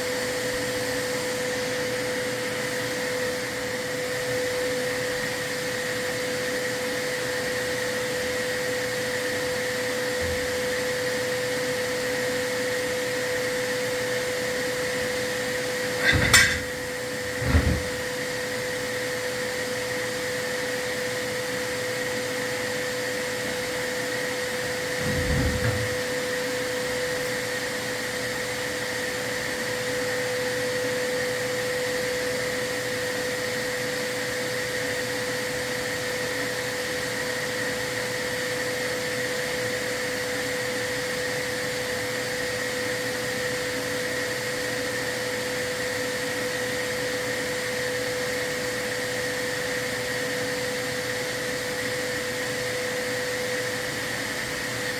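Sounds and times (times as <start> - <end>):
vacuum cleaner whining: 0.0 - 54.9
low thump: 16.0 - 18.1, 25.0 - 26.1.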